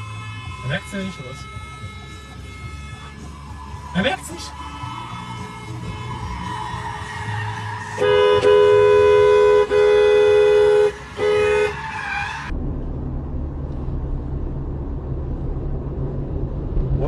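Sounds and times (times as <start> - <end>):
car horn blaring: 0.0 - 12.5
low engine and road rumble: 0.0 - 17.0.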